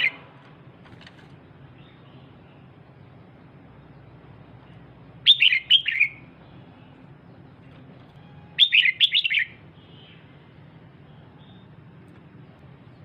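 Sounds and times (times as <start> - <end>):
bird high chirping call: 5.2 - 7.4, 8.2 - 10.3.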